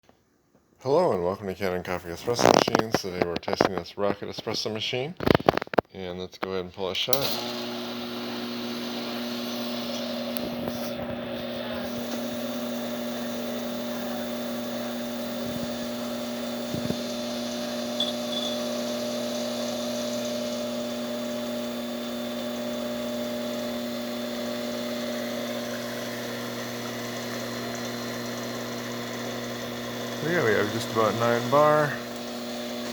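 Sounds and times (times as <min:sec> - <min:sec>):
espresso machine pump humming: 0:07.2 - 0:32.9.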